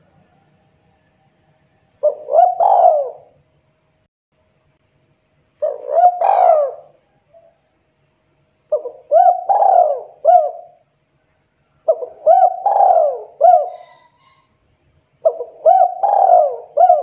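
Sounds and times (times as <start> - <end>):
dove cooing: 2.0 - 3.4, 5.6 - 7.6, 8.7 - 10.8, 11.8 - 14.5, 15.2 - 17.0.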